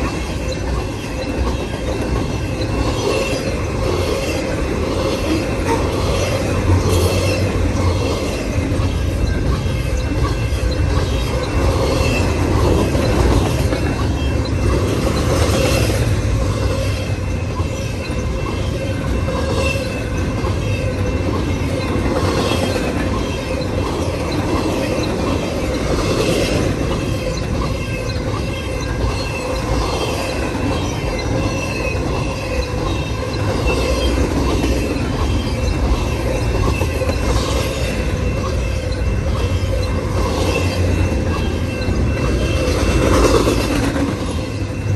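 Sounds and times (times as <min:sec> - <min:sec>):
train wheels rumbling on rail: 0:00.0 - 0:44.9
wheels clicking over rail joints: 0:00.0 - 0:44.9
wheel squeal: 0:16.6 - 0:44.9.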